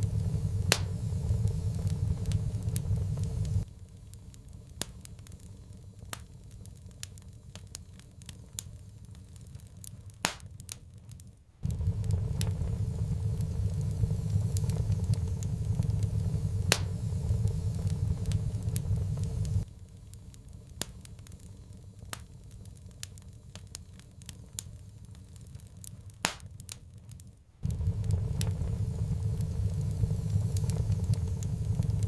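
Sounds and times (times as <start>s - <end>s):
steady low rumble: 0.0s - 7.0s, 11.6s - 20.5s, 27.6s - 32.0s
wood fire crackling and popping: 0.0s - 32.0s.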